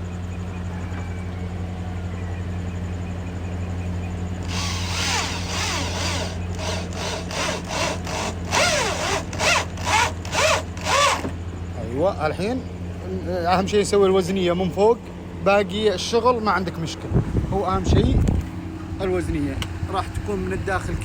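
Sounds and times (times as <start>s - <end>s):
low hum: 0.0s - 21.0s
power drill driving screws: 4.4s - 11.4s.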